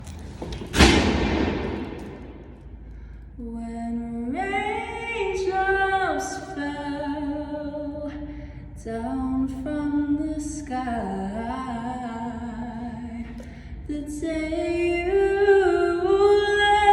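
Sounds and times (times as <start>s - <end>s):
woman singing a cappella: 3.4s - 16.9s.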